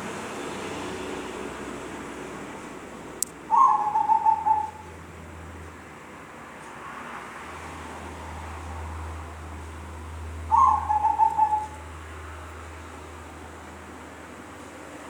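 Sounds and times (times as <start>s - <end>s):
dove pulsing coo: 3.5s - 5.0s, 10.4s - 12.0s.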